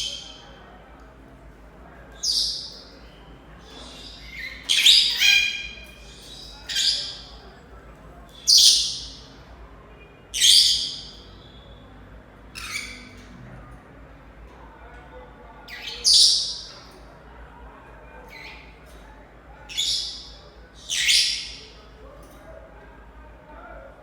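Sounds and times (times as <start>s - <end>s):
parrots shrill calls: 3.7s - 7.3s, 8.4s - 9.2s, 10.4s - 11.2s, 12.5s - 13.2s, 19.7s - 21.7s.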